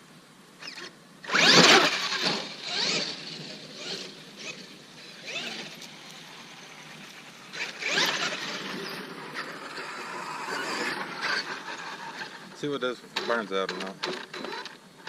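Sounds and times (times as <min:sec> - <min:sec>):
electric motor whine revving: 0:00.6 - 0:12.6.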